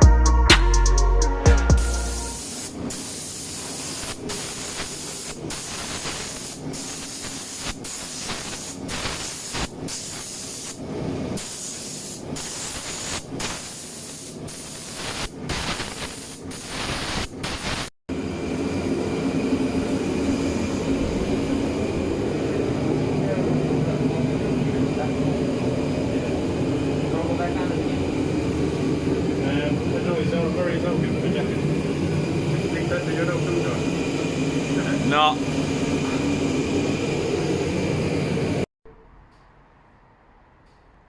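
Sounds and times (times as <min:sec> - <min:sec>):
spray gun hissing: 0:01.8 - 0:17.9
low mechanical hum: 0:18.1 - 0:39.8.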